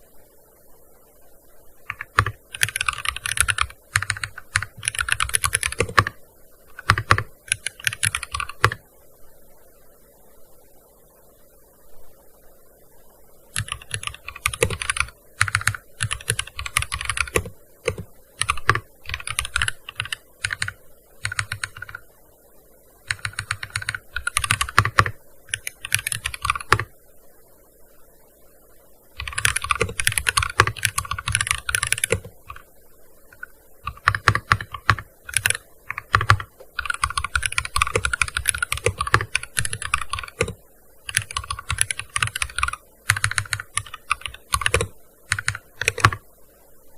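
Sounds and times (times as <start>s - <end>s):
keyboard key clicks: 33.9s - 46.2s.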